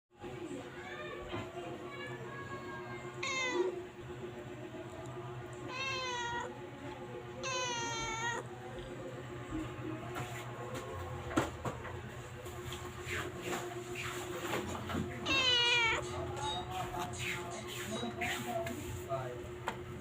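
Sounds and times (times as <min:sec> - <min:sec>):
cat meowing: 0:03.2 - 0:03.8, 0:05.7 - 0:06.6, 0:07.4 - 0:08.5, 0:15.2 - 0:16.2.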